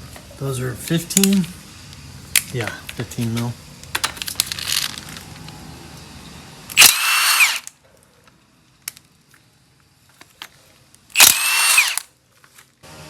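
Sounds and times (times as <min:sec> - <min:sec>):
tool handling clatter: 0:02.4 - 0:05.4
power tool motor whine: 0:06.7 - 0:07.7, 0:11.2 - 0:12.1.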